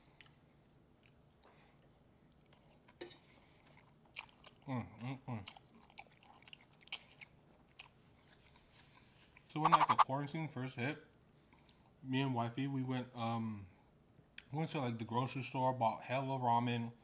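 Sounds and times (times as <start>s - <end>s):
faint chewing of noodles: 0.0s - 9.5s, 11.4s - 12.0s
mouth clicks and lip smacks: 9.6s - 10.0s.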